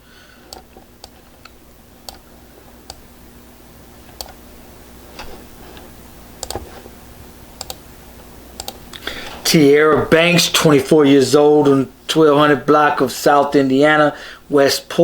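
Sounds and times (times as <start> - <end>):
faint steady hum: 0.0 - 15.0
computer mouse clicks: 0.5 - 2.2, 4.1 - 4.4, 5.2 - 6.7, 7.6 - 7.8, 8.6 - 9.0.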